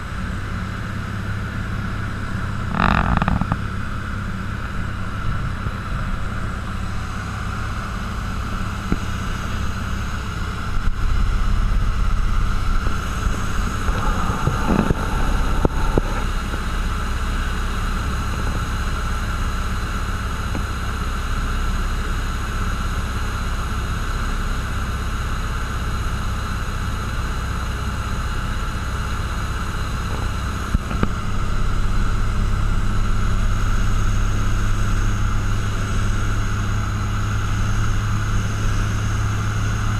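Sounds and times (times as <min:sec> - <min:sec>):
propeller plane engine droning: 0:00.0 - 0:39.9
wind noise: 0:10.6 - 0:18.7.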